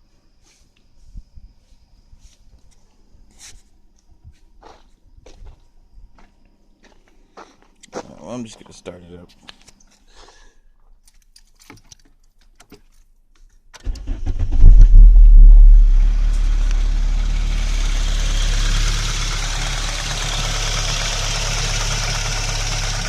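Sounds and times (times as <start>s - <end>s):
car engine starting and idling: 13.8s - 23.0s.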